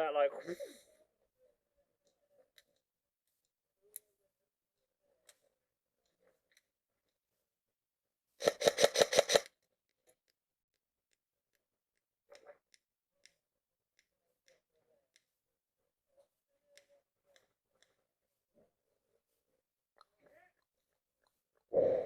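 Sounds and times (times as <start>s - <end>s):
airsoft gun rapid burst: 8.4s - 9.5s
distant airsoft fire clicks: 8.4s - 9.5s.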